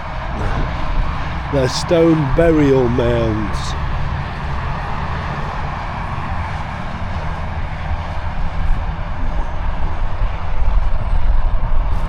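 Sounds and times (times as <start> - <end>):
outdoor rushing noise: 0.0 - 12.0
low uneven rumble: 0.1 - 6.4.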